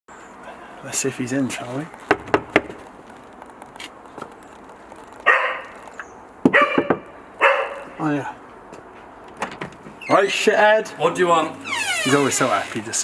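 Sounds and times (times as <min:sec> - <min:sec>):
dog barking: 0:05.3 - 0:05.8, 0:06.5 - 0:08.0.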